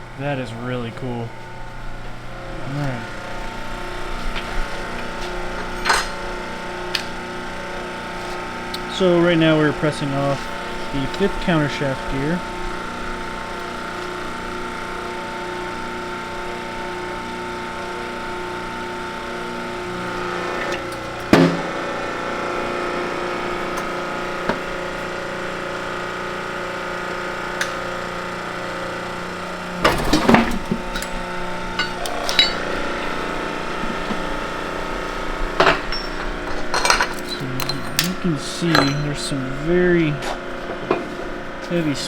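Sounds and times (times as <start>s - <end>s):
steady machine hum: 0.0s - 42.0s
metal knocks and clanks: 31.8s - 34.6s, 35.6s - 39.4s.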